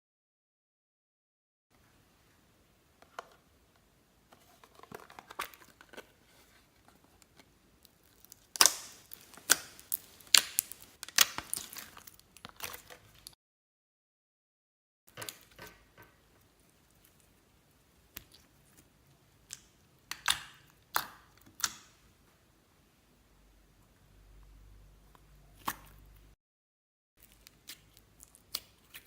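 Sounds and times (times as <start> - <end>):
slime crackling and popping: 7.8 - 13.3, 27.2 - 29.0.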